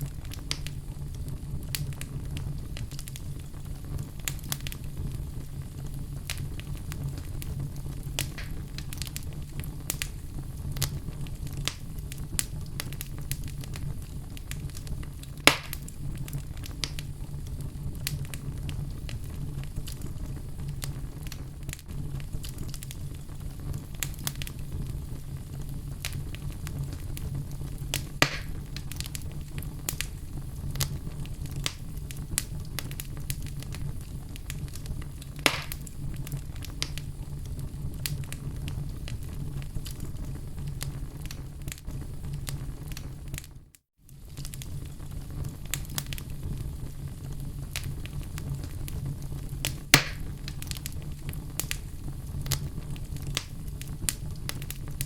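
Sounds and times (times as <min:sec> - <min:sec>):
low rumble of fire: 0:00.0 - 0:55.0
wood fire crackling: 0:00.0 - 0:55.0
loud sharp pops: 0:08.2 - 0:08.6, 0:15.5 - 0:15.9, 0:28.2 - 0:28.6, 0:35.4 - 0:35.9, 0:49.9 - 0:50.3.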